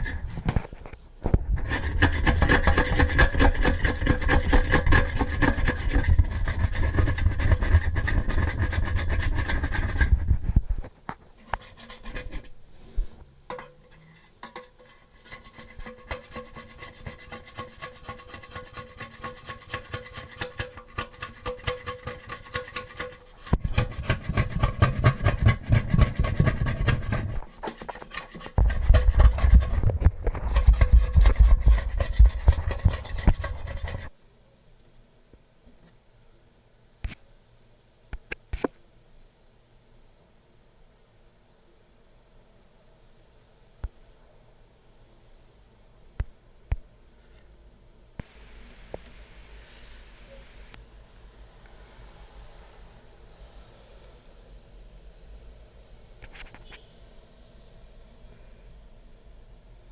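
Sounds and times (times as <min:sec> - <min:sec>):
metal spoon scraping kettle: 0:00.0 - 0:00.7, 0:01.6 - 0:10.4, 0:11.4 - 0:34.1.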